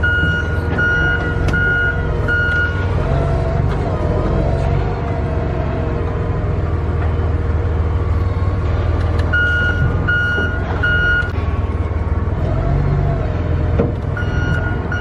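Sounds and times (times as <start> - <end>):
reversing alarm beeping: 0.0 - 2.8, 9.3 - 11.3, 14.2 - 15.0
low engine rumble: 0.0 - 15.0.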